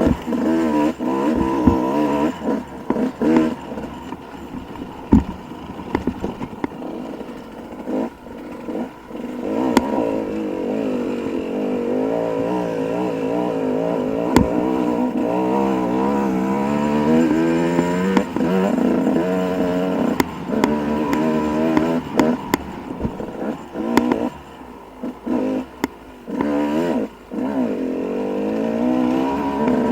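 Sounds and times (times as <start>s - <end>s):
clattering knocks: 0.0s - 10.0s, 14.1s - 15.8s
dirt bike engine: 0.0s - 29.9s.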